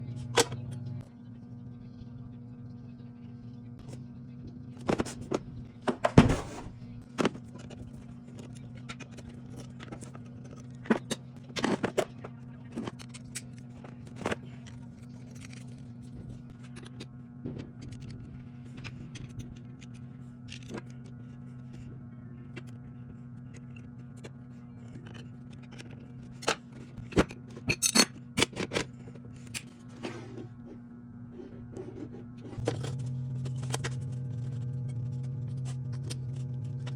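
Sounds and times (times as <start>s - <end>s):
steady low hum: 0.0s - 36.9s
heavy thud: 5.9s - 6.9s.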